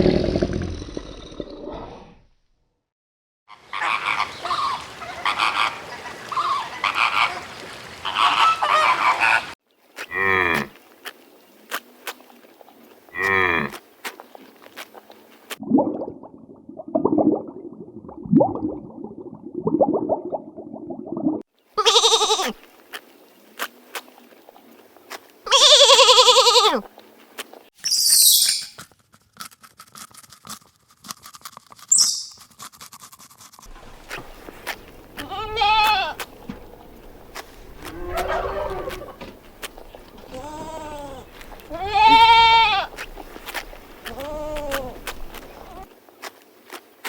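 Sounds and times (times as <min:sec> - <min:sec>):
animal bleating: 0:21.8 - 0:22.6, 0:25.5 - 0:26.8, 0:35.2 - 0:36.2, 0:40.2 - 0:43.0, 0:44.0 - 0:45.8
lower animal calls: 0:37.8 - 0:39.3, 0:39.9 - 0:43.0, 0:44.0 - 0:45.9.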